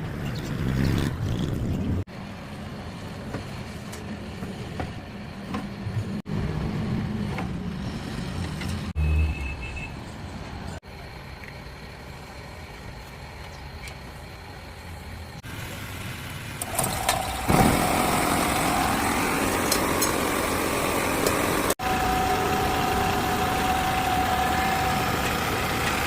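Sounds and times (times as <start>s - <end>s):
generator engine running: 10.9s - 26.0s.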